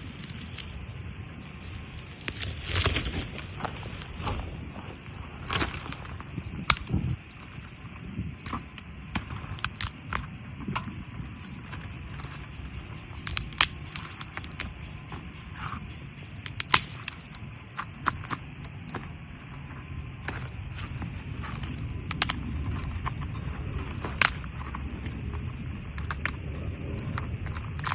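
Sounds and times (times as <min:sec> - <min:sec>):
cricket droning: 0:00.0 - 0:27.9
campfire crackling and popping: 0:04.0 - 0:14.8, 0:16.4 - 0:19.0, 0:20.6 - 0:27.9.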